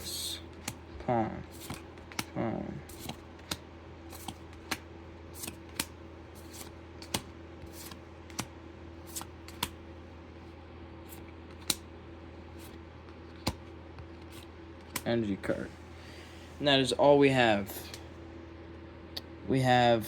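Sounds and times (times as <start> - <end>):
cards clicking against cards: 0.0 - 0.9, 1.5 - 9.8, 11.1 - 11.9, 12.6 - 15.1
faint steady hum: 0.0 - 20.0.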